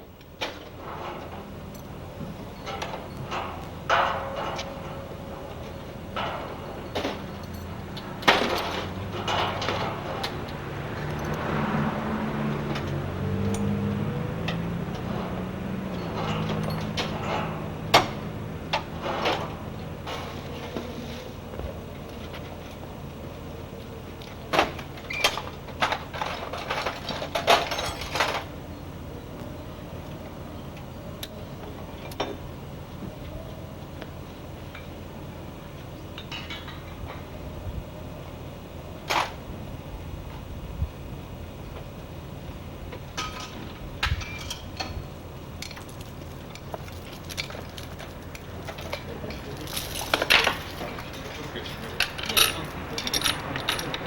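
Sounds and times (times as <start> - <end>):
metal clattering and clanking: 0.0 - 22.8, 24.3 - 28.6, 36.2 - 37.3, 43.0 - 54.0
metal tools clinking: 5.6 - 11.6, 14.4 - 20.2, 25.0 - 28.5, 44.2 - 45.0, 45.6 - 54.0.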